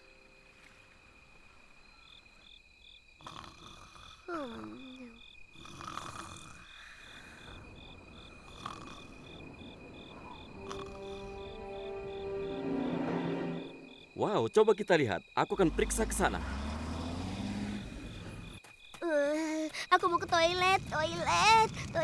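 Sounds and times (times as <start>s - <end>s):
high insect trill: 0.0s - 21.9s
crickets chirping: 0.0s - 22.0s
music notes: 10.5s - 14.1s.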